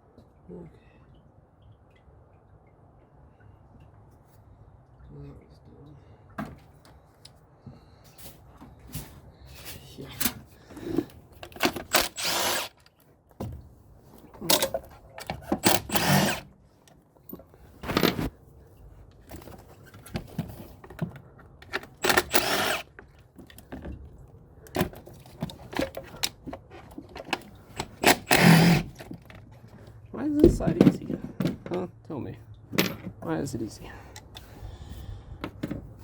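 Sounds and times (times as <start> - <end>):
metal tool clicks and clanks: 11.4 - 13.0, 14.4 - 16.4, 21.6 - 23.0, 27.2 - 28.8
power tool whirring: 11.6 - 12.8, 15.6 - 16.5, 22.0 - 22.9, 27.8 - 28.9.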